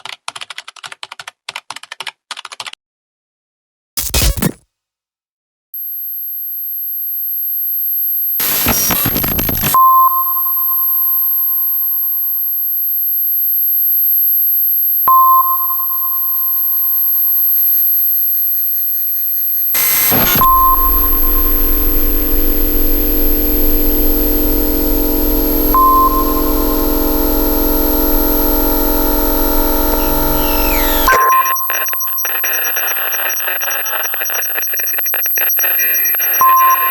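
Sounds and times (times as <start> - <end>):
noise bursts: 8.4 - 9.8, 19.7 - 36.9
thin high synth tones: 15.4 - 36.9
low drone: 19.8 - 36.9
synthesized ping: 19.8 - 36.9.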